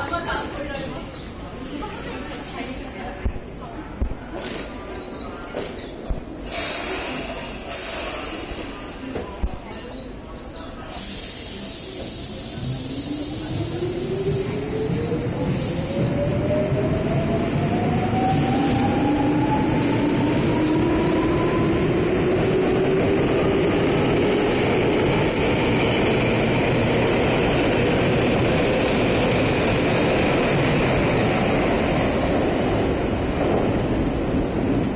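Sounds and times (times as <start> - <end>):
wheels rumbling on rail: 11.0 - 34.9.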